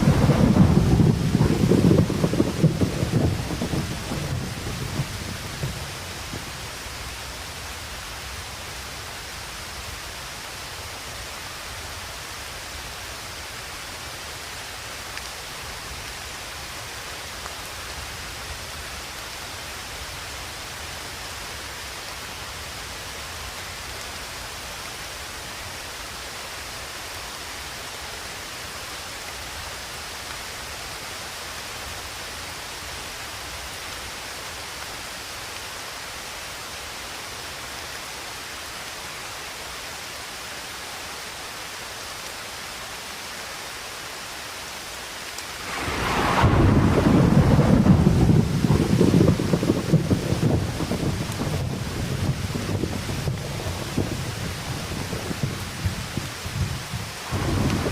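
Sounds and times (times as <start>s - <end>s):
low rumble of thunder: 0.0s - 7.1s, 45.6s - 57.9s
rain hiss: 0.0s - 57.9s.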